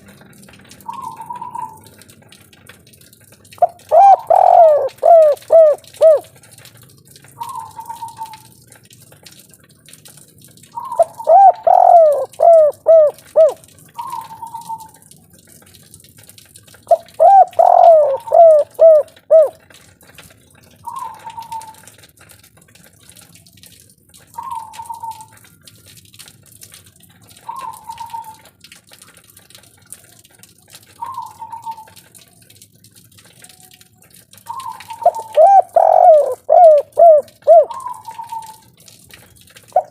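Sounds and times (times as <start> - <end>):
dove cooing: 0.9 - 1.8, 3.6 - 6.3, 10.8 - 14.9, 16.9 - 19.6, 34.5 - 38.6.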